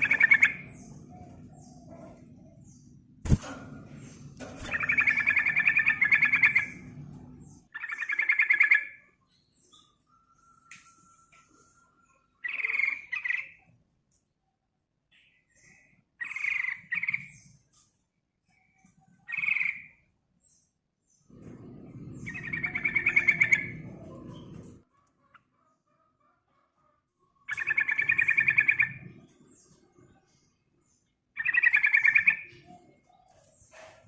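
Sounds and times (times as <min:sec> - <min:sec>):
low rumbling noise: 0:21.3 - 0:24.8.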